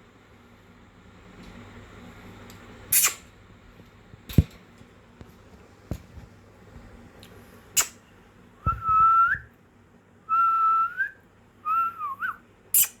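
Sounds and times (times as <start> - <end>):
parakeet whistling: 11.7 - 13.0.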